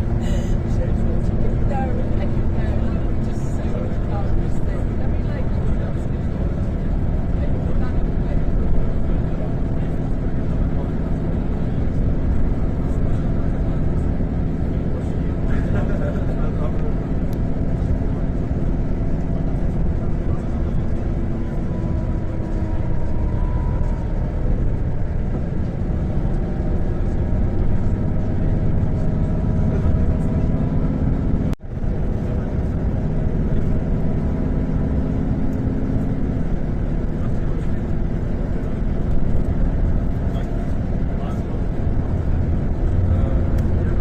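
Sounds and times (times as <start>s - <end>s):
faint voices: 0.0s - 44.0s
motor vehicle rumbling: 0.0s - 44.0s.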